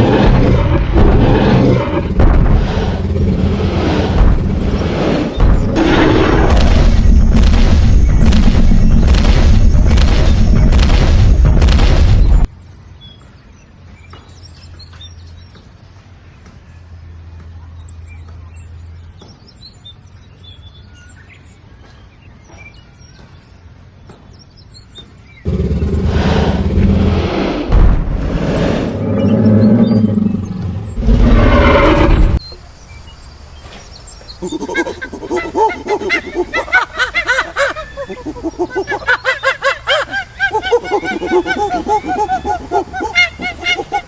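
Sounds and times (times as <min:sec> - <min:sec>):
animals calling: 0:00.0 - 0:11.0, 0:28.4 - 0:32.8, 0:34.0 - 0:44.0
low hum: 0:00.0 - 0:12.6, 0:25.5 - 0:32.4
birds chirping: 0:00.0 - 0:44.0
outdoor background hiss: 0:12.2 - 0:44.0.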